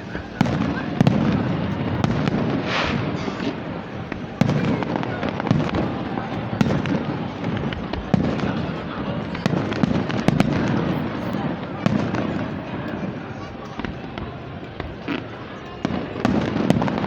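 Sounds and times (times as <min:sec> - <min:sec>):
fireworks bangs and booms: 0:00.0 - 0:17.0
hissing crackle: 0:02.4 - 0:04.2.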